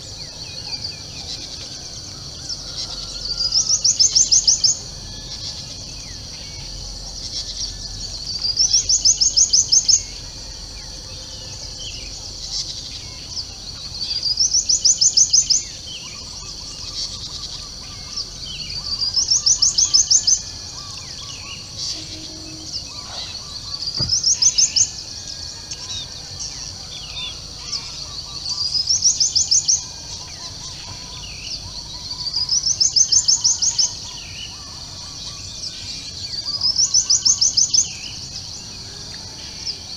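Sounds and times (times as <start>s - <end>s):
steady high hiss: 20.2s - 26.5s.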